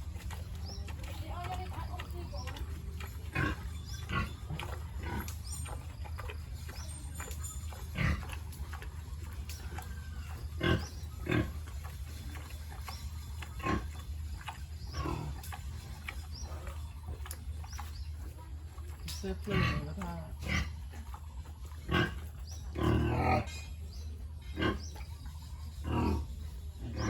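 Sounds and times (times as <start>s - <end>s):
pigs grunting: 0.0s - 27.0s
steady low hum: 0.0s - 27.0s.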